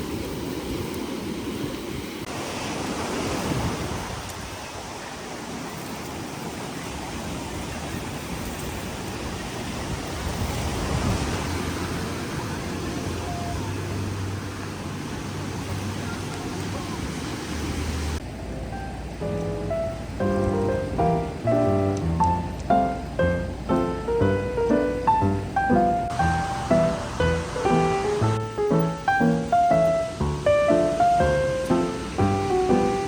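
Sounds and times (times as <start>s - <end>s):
strong sea wind: 0.0s - 18.2s
surf rushing: 0.0s - 33.0s.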